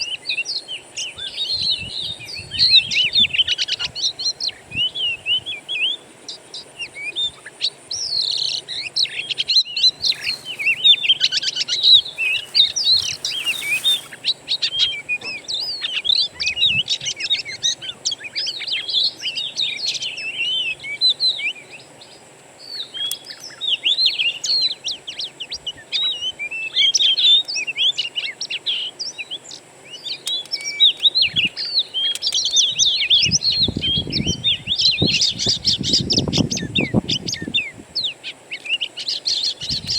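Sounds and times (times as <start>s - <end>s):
songbirds chirping and singing: 0.0s - 39.9s
faint high whine: 4.4s - 22.8s.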